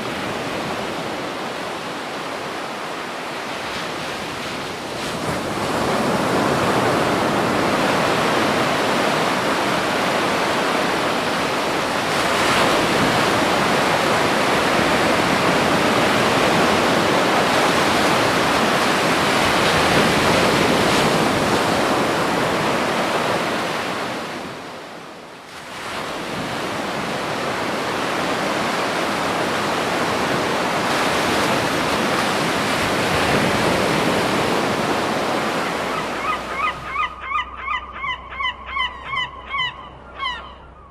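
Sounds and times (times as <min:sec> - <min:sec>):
ocean surf breaking: 0:00.0 - 0:37.2.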